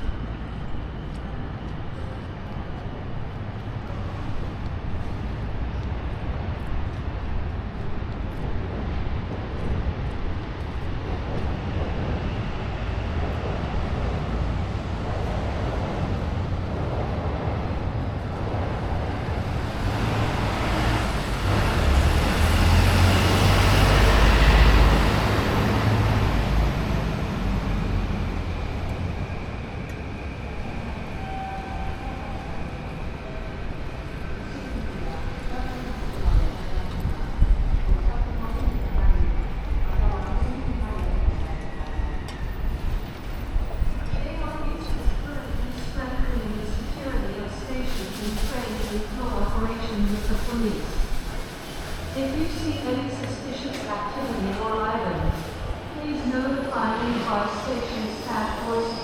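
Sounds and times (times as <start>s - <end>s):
urban traffic noise: 0.0s - 59.0s
heavy vehicle passing rumble: 19.3s - 28.8s.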